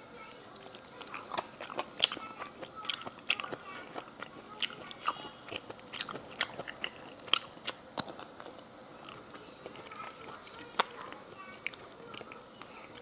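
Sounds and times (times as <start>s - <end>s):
shellfish being chewed: 0.5s - 13.0s.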